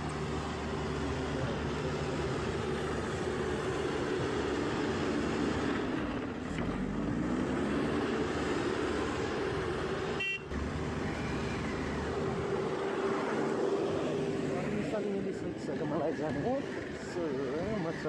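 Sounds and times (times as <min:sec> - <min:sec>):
short horn beep: 0:10.2 - 0:10.5.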